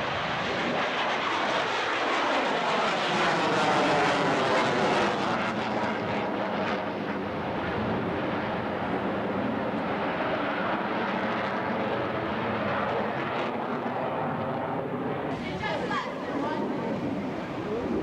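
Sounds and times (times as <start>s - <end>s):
airplane flying past: 0.0s - 18.0s.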